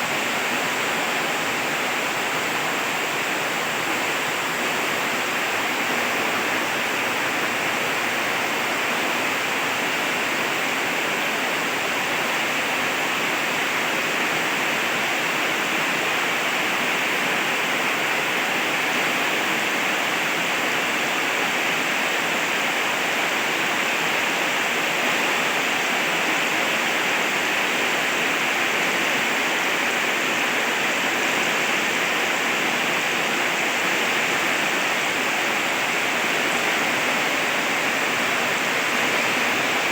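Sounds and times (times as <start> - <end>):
heavy rain falling: 26.2 - 39.9.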